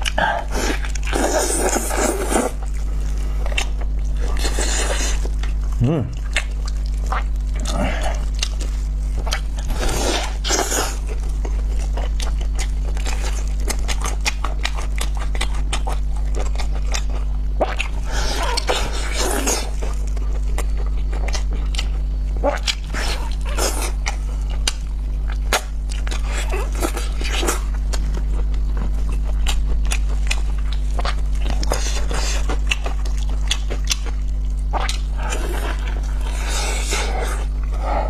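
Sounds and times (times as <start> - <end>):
steady low hum: 0.0 - 38.0
wet chewing and mouth sounds: 0.0 - 38.0.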